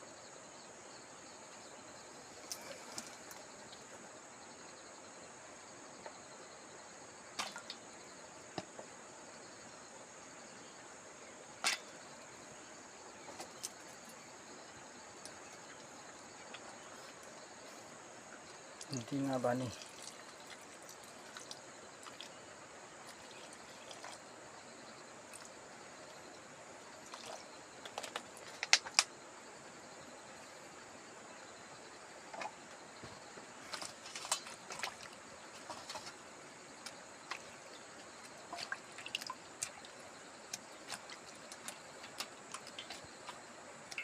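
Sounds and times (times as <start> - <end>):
steady high-pitched hiss: 0.0 - 44.0
water dripping and trickling: 7.4 - 7.9, 13.2 - 29.1, 33.1 - 44.0.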